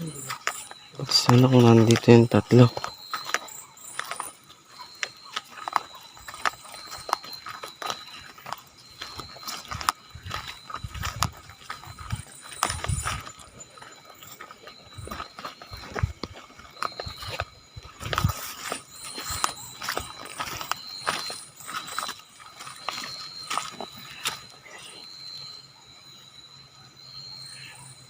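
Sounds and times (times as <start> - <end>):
faint high-pitched tone: 0.0 - 22.1
footsteps on rough ground: 0.0 - 25.4.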